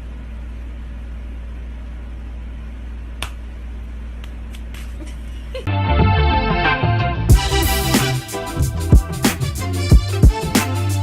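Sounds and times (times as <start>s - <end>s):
steady low hum: 7.2s - 11.0s.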